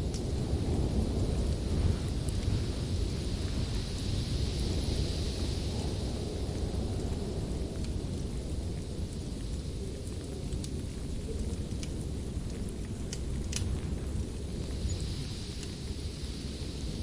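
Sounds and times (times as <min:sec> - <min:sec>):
sharp pops from fire: 0:00.0 - 0:02.8, 0:06.5 - 0:15.8
wood fire crackling: 0:00.0 - 0:17.0.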